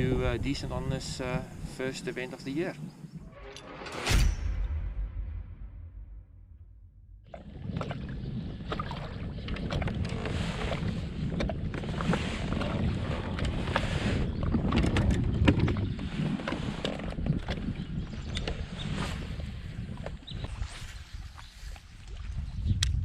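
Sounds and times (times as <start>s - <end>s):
wind buffeting microphone: 0.0s - 3.3s, 7.2s - 23.0s
water lapping against hull: 7.2s - 22.9s.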